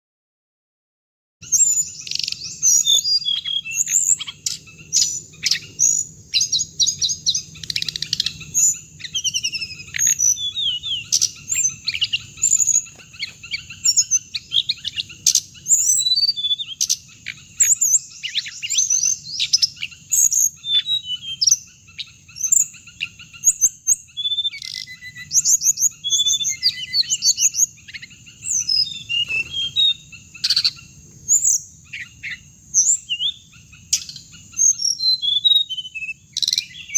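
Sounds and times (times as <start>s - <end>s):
songbirds chirping and trilling: 1.4s - 36.9s.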